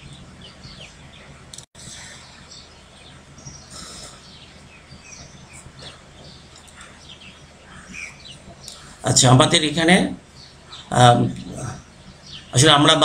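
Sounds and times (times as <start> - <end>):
high bird chirps: 0.0 - 9.1
low electrical hum: 0.0 - 13.0.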